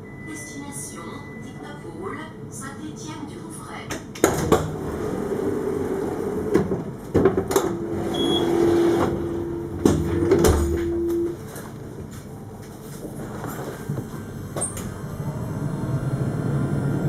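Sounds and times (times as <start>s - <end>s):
tram low rumble: 0.0s - 17.0s
mechanical knocks and clunks: 3.9s - 4.8s, 6.5s - 11.4s
steady hum: 4.4s - 17.0s.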